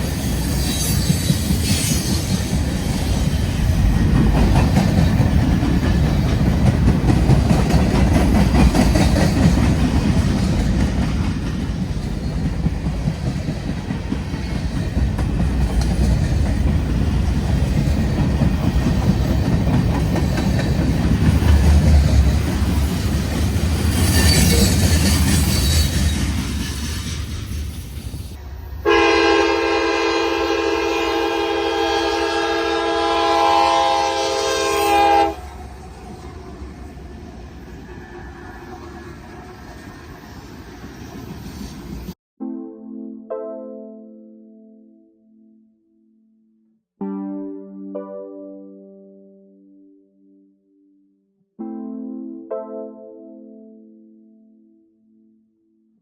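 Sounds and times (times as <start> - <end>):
freight train wheels rumbling: 0.0 - 28.8
locomotive horn: 28.8 - 35.5.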